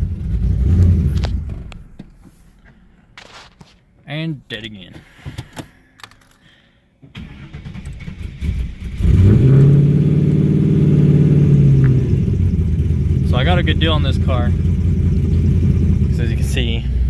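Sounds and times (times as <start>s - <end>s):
car engine idling: 0.0s - 2.2s, 7.2s - 17.0s.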